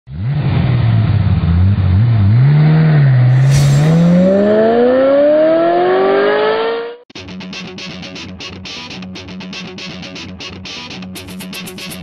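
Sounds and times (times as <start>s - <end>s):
car engine revving: 0.1s - 7.0s
brief hiss: 3.3s - 4.6s.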